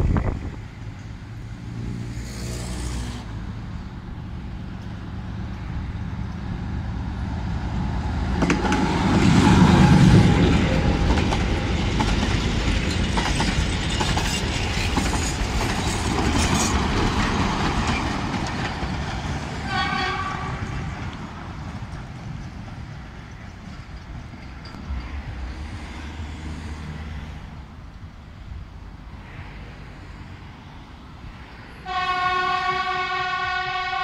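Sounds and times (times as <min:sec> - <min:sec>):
diesel locomotive engine: 0:00.0 - 0:34.0
train wheels clicking on rails: 0:07.7 - 0:27.5.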